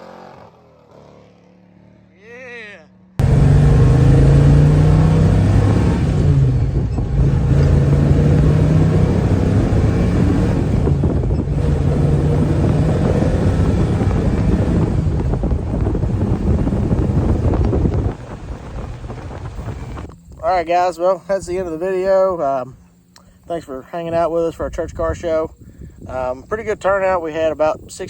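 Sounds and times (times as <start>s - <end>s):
vehicle engine running: 3.1s - 25.2s.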